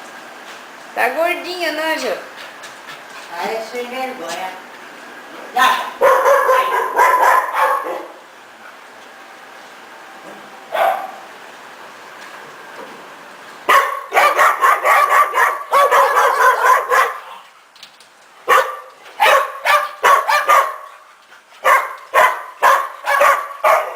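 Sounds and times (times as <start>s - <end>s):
dogs barking together: 5.7s - 8.3s, 10.7s - 11.3s, 13.7s - 17.5s, 18.4s - 23.9s.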